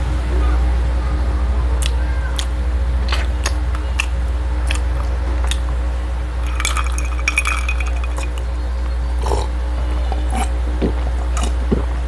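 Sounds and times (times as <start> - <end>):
steady low hum: 0.0 - 12.0
wet chewing: 1.8 - 5.8
glass cup clinking: 6.4 - 8.5.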